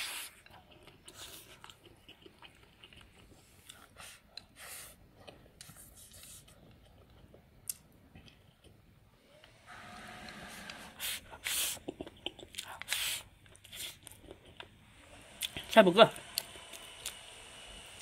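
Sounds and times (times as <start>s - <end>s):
faint chewing and mouth noises: 0.0s - 9.1s, 10.7s - 15.7s.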